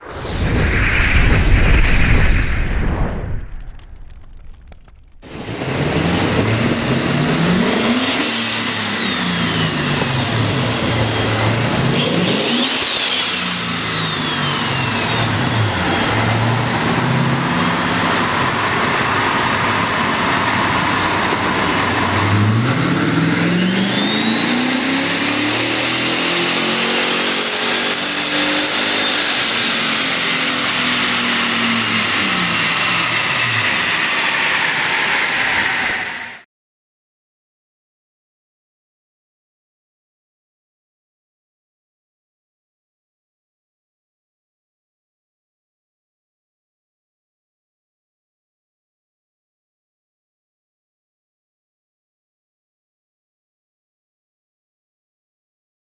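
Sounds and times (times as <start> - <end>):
high rising turbo whine: 0.0 - 36.4
engine revving through gear shifts: 5.5 - 13.6, 21.7 - 27.2.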